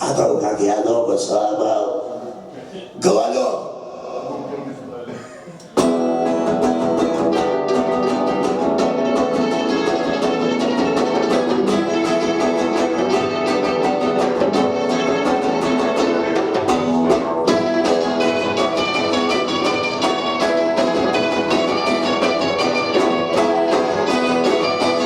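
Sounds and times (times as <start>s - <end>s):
punk rock band playing: 5.8s - 25.0s.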